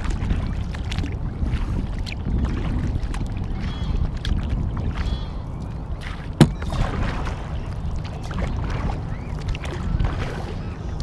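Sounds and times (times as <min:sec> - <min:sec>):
paddle splashing and dripping water: 0:00.0 - 0:10.5
sharp knock: 0:06.4 - 0:06.6.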